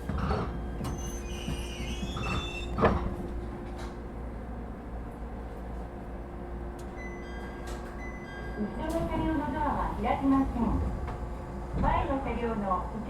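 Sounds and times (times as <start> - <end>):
train doors sliding and squeaking: 0.0 - 4.4
train equipment hum: 0.0 - 13.0.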